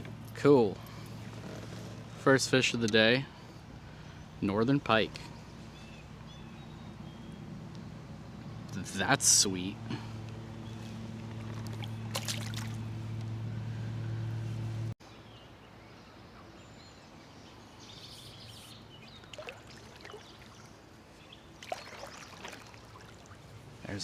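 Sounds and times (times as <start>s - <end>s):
steady low hum: 0.0s - 15.0s
faint trickling water: 19.1s - 24.0s.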